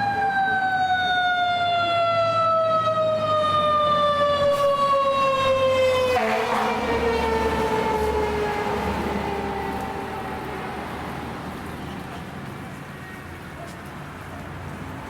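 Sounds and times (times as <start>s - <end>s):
fire siren winding down: 0.0s - 11.4s.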